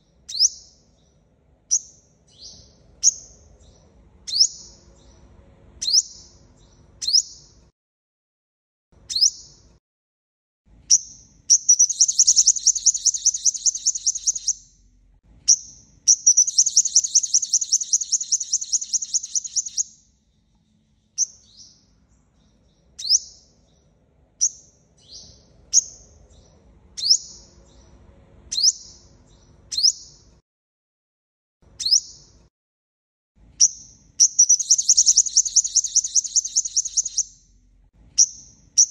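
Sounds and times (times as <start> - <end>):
sunbird chirps and trills: 10.9 - 14.8, 15.5 - 30.3, 33.6 - 37.6, 38.2 - 38.9.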